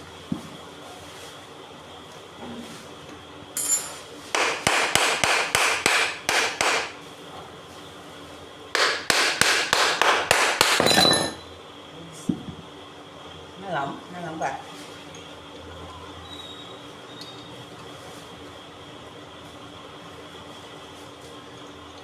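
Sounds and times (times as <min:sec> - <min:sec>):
hammer tapping on metal: 0:04.4 - 0:06.9, 0:08.8 - 0:11.4.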